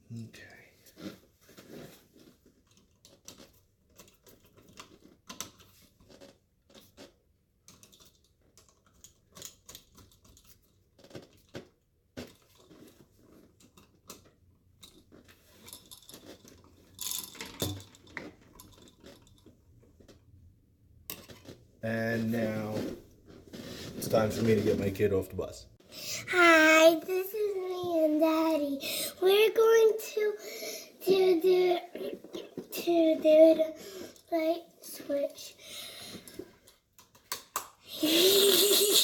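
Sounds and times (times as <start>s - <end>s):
hand work on electrical wiring: 1.0s - 20.4s
tools clattering: 14.8s - 19.6s.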